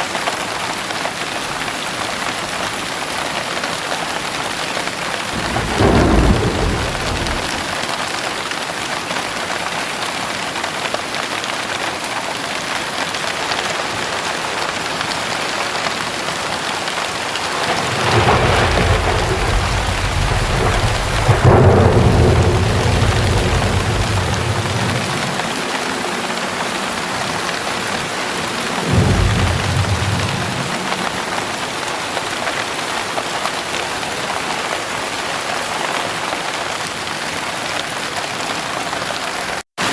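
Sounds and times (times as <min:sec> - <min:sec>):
heavy rain pouring: 0:00.0 - 0:39.9
thunder rumbling: 0:05.2 - 0:08.2, 0:15.5 - 0:32.4.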